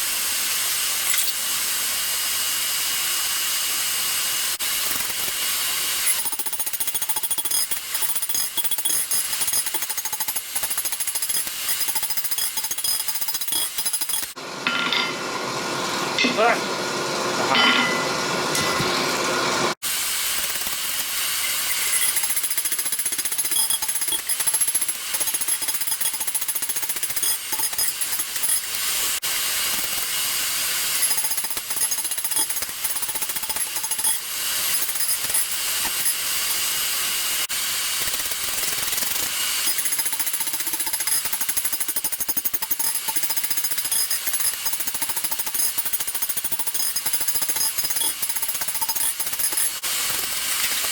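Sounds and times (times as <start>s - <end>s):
hammer blows on anvil: 17.4s - 18.9s.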